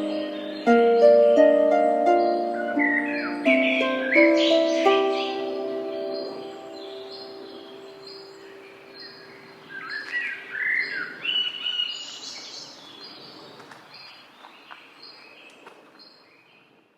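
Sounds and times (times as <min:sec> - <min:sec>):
held music chord: 0:00.0 - 0:09.0
birds chirping: 0:00.0 - 0:16.7.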